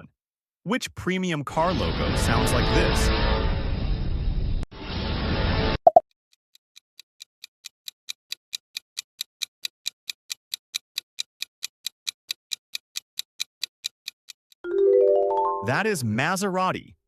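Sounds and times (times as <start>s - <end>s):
clock ticking: 6.5s - 14.6s.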